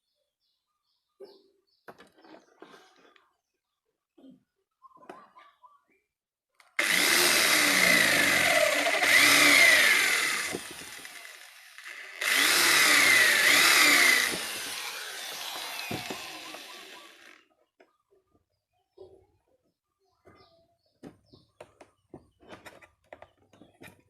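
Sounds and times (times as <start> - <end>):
handheld power tool running: 6.8 - 17.5.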